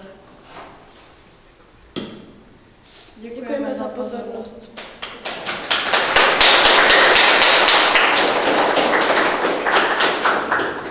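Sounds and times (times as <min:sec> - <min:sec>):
pupils applauding: 0:04.8 - 0:10.9.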